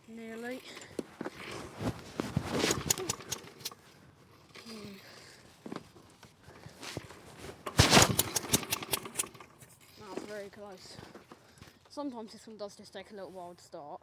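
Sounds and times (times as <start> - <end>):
mower engine cranking: 0.4 - 5.0, 6.8 - 11.6
recoil cord yanked: 0.8 - 3.8, 6.8 - 10.4.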